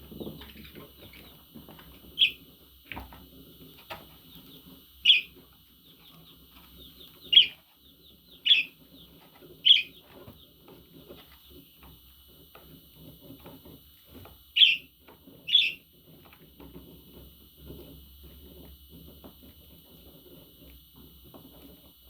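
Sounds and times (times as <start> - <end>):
budgerigars chirping: 2.2 - 2.4, 5.0 - 5.3, 7.1 - 7.6, 8.3 - 8.7, 9.6 - 10.0, 14.6 - 14.9, 15.5 - 15.8
soft twittering: 5.0 - 5.3, 8.4 - 8.8, 14.6 - 14.9, 15.5 - 15.8.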